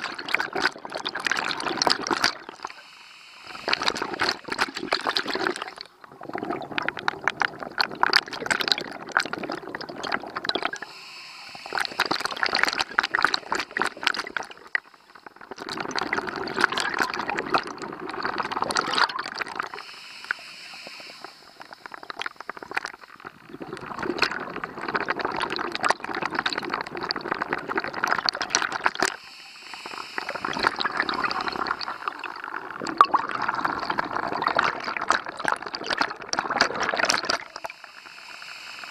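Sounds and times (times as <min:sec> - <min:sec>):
bubbling exhalations underwater: 0:00.0 - 0:02.9, 0:03.5 - 0:19.9, 0:20.8 - 0:37.9
regulator hissing inhalation: 0:01.4 - 0:06.0, 0:10.4 - 0:15.5, 0:19.5 - 0:23.4, 0:28.9 - 0:32.8, 0:37.4 - 0:38.9.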